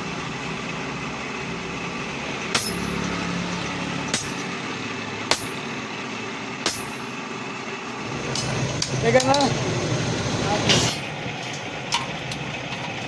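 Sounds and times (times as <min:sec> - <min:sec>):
mechanical running noise: 0:00.0 - 0:13.0
hammer striking iron: 0:02.5 - 0:03.4, 0:04.0 - 0:05.9, 0:06.6 - 0:07.2, 0:08.3 - 0:09.6, 0:10.7 - 0:11.3.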